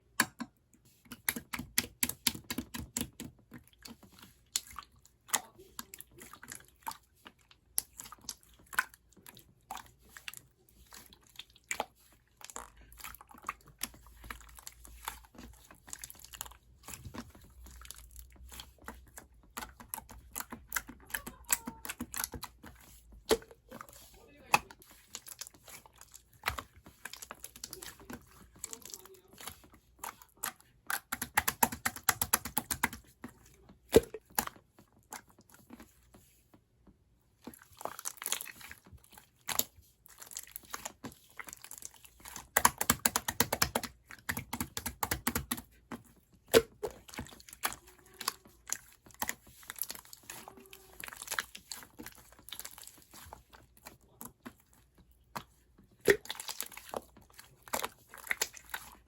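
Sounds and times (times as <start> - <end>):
crinkling handling sounds: 45.4 - 59.0.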